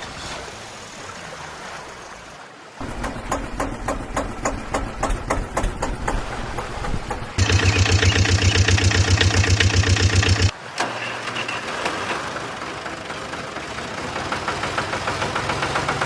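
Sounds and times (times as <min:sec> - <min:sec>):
diesel engine idling: 0:02.8 - 0:10.5, 0:12.3 - 0:16.0
louder engine with heavy pulse: 0:02.8 - 0:10.5, 0:12.2 - 0:16.0.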